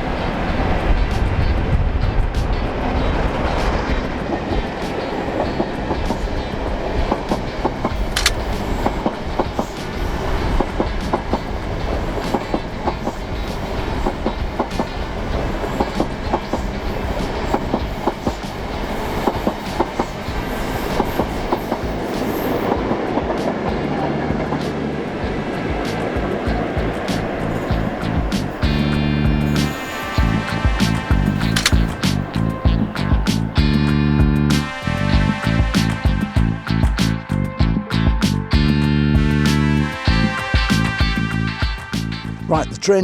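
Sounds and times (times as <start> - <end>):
diesel locomotive rumble: 0.0 - 42.8
train coaches clicking over rail joints: 2.4 - 30.2, 30.8 - 33.6.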